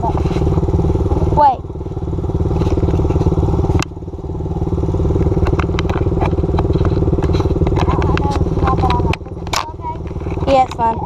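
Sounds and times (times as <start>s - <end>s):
dirt bike engine idling: 0.0s - 11.0s
light clicks and clatter: 5.3s - 11.0s.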